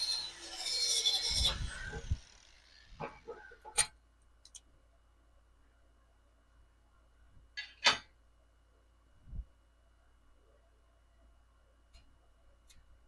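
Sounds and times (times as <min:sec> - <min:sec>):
power tool whining: 0:00.0 - 0:03.8.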